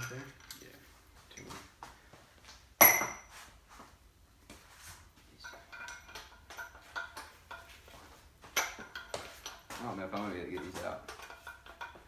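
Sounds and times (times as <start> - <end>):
sharp metal clank: 2.8 - 3.3.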